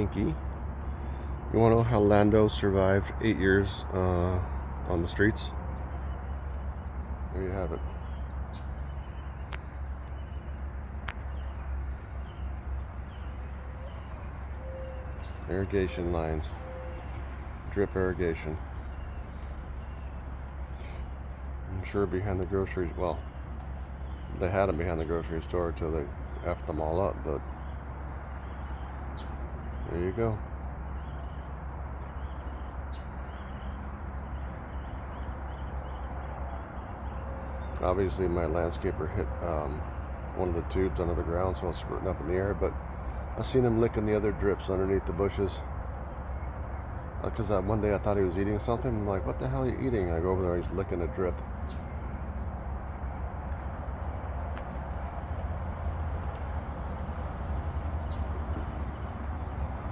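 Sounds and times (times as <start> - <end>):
insect chirping: 0.0 - 59.9
steady low rumble: 0.0 - 59.9.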